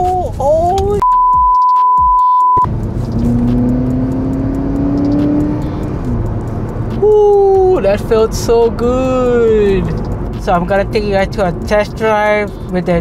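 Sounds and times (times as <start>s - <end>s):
censor bleep: 1.0s - 2.7s
car engine accelerating: 2.6s - 13.0s.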